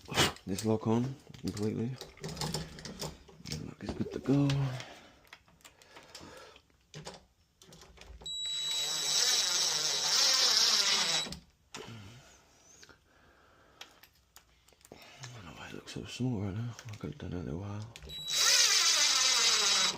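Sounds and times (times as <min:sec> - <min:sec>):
cordless drill whining: 0:08.2 - 0:11.4, 0:18.1 - 0:19.9.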